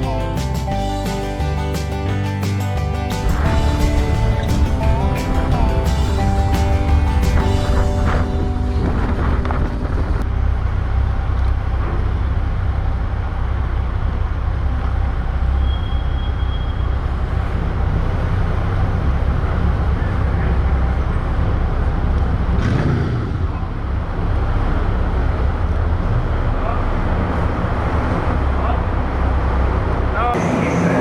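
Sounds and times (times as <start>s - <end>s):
motorcycle engine rumble: 0.6s - 15.5s.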